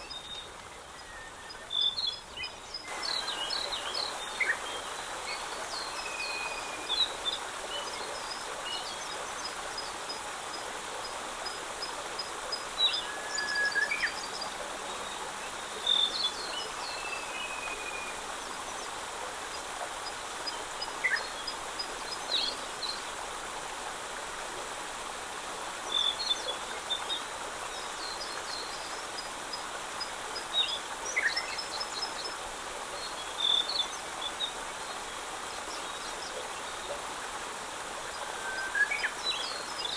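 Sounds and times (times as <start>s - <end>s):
songbirds singing: 0.0s - 23.2s
steady rushing hiss: 2.8s - 17.4s.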